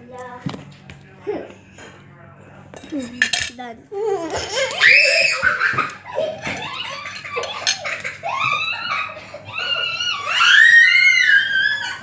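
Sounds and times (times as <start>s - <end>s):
dishes clinking: 2.7s - 3.6s, 5.5s - 8.6s
girls squealing and laughing: 4.5s - 12.0s.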